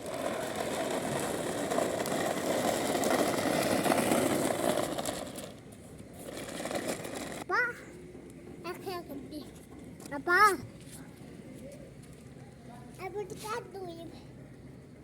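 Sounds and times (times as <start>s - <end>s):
small motor vehicle rattling: 0.0s - 7.5s.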